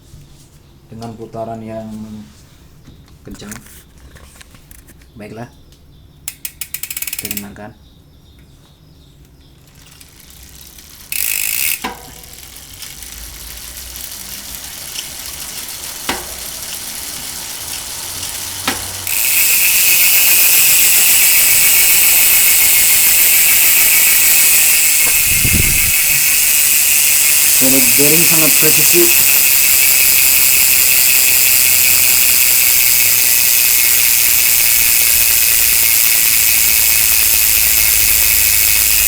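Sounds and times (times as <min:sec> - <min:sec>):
sharp clicks: 0:05.7 - 0:07.5
bicycle freehub ratcheting buzz: 0:06.2 - 0:07.6, 0:09.2 - 0:39.0.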